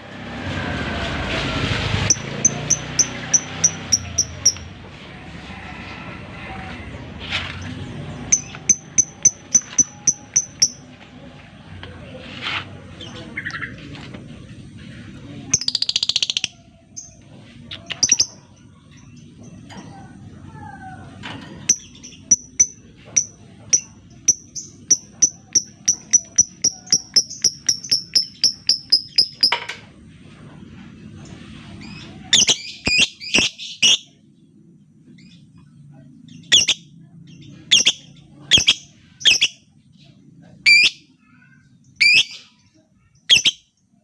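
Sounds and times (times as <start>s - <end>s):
lovebird calling: 43.2s - 43.6s.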